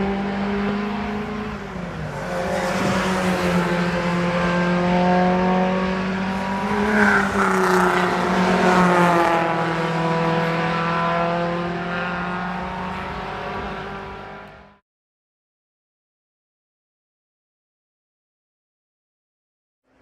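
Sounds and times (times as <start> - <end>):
racing car engine passing: 0.0 - 14.8.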